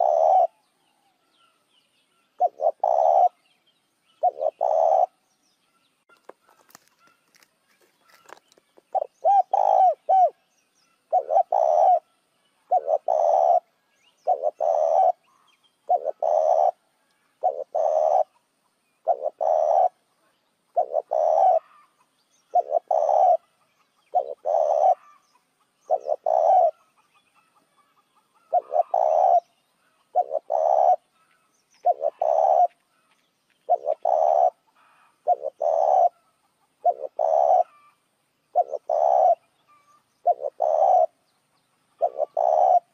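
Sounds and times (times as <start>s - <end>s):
dove cooing: 0.0s - 0.6s, 2.4s - 3.4s, 4.2s - 5.2s, 8.0s - 10.4s, 11.1s - 12.1s, 12.7s - 16.8s, 17.4s - 20.1s, 20.7s - 23.5s, 24.1s - 25.2s, 25.8s - 26.9s, 28.3s - 32.8s, 33.7s - 41.2s, 42.0s - 42.9s.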